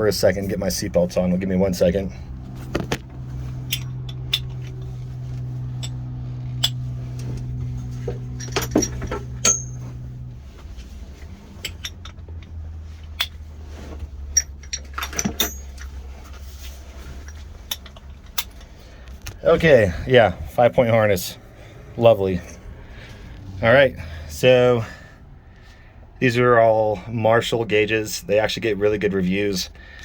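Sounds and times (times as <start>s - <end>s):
low hum: 0.0s - 24.2s
harness buckles clicking: 2.4s - 10.2s, 11.2s - 13.4s.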